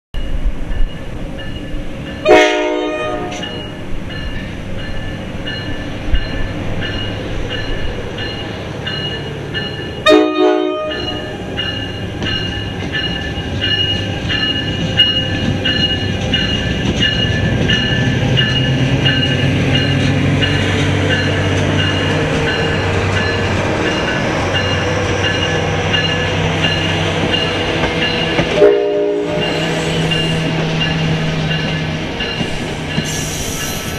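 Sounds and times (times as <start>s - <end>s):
diesel locomotive engine hum: 0.2s - 33.9s
train cars clattering over rails: 0.3s - 33.9s
train horn blasts: 2.2s - 3.8s, 10.0s - 11.4s, 28.4s - 30.7s.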